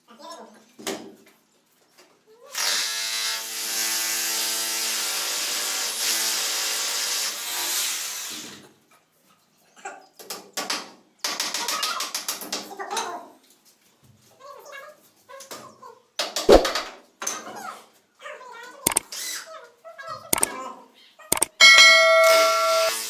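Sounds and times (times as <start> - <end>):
sharp clicks and knocks: 21.3 - 21.6.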